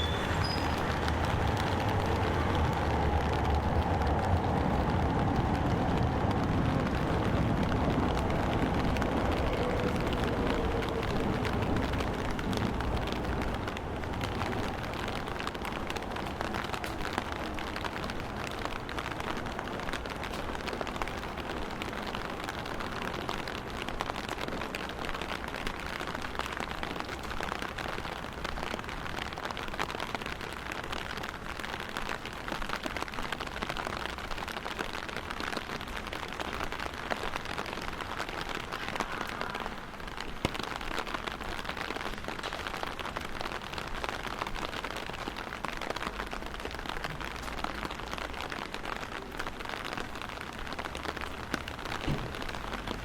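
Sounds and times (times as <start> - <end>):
vehicle rumble: 0.0 - 21.8, 42.2 - 53.0
steady rain falling: 0.0 - 53.0.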